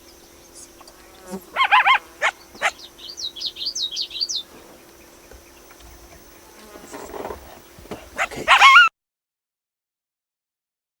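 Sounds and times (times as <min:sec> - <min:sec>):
coyote yipping: 0:01.5 - 0:04.4, 0:08.1 - 0:08.9.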